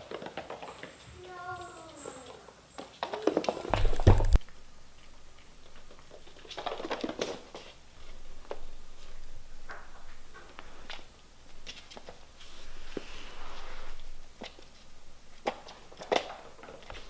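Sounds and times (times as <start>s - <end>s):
kittens' paws pattering on floor: 0.0s - 17.0s
heavy thumps: 3.7s - 17.0s.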